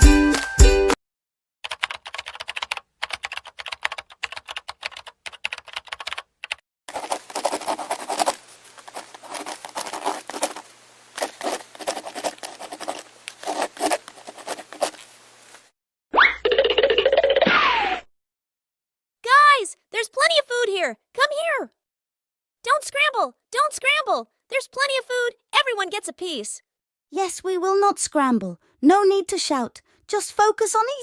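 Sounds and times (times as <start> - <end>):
birds pecking at food: 6.9 - 15.7.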